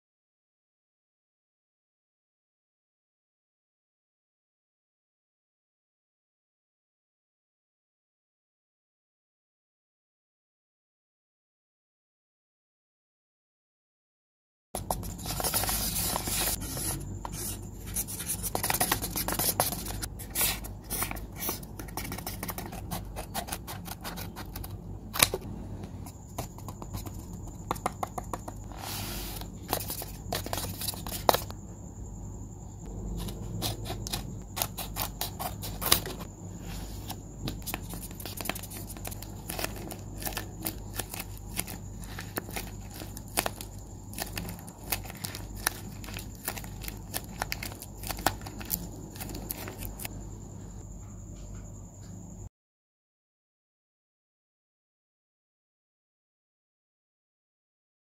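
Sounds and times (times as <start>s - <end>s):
paper rustling and crinkling: 14.8s - 25.4s, 28.6s - 31.5s, 33.2s - 50.1s.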